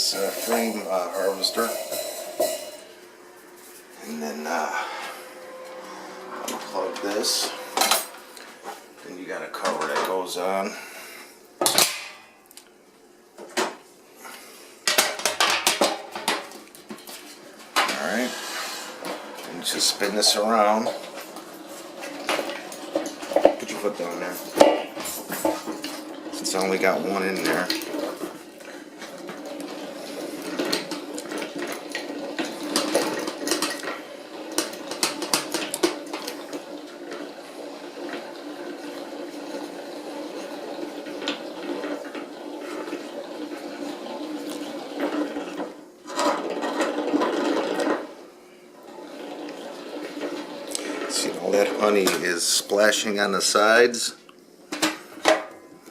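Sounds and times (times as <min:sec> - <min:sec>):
metal cover clanking: 0:00.0 - 0:02.9
honey extractor whirring: 0:00.0 - 0:11.7, 0:13.6 - 0:54.1.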